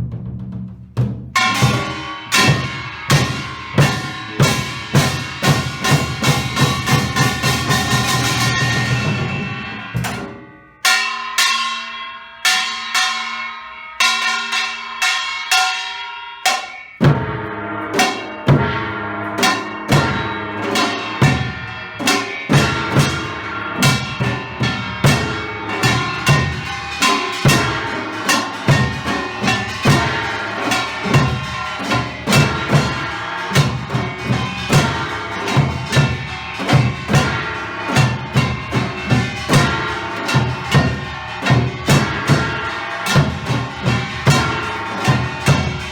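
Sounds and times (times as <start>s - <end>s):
fast drums and gongs: 0.0s - 45.9s
ringing gong strokes: 1.4s - 45.9s.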